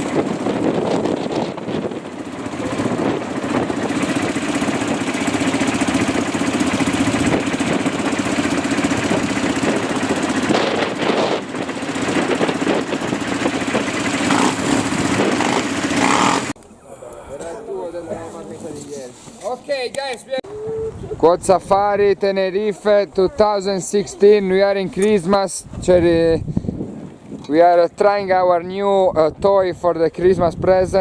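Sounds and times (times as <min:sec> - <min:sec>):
quad bike engine droning: 0:00.0 - 0:17.7.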